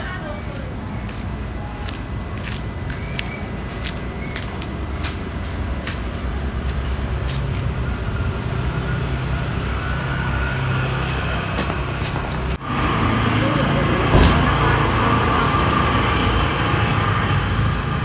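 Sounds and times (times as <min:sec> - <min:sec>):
road traffic noise: 0:00.0 - 0:18.0
vehicle engine humming: 0:00.0 - 0:18.0.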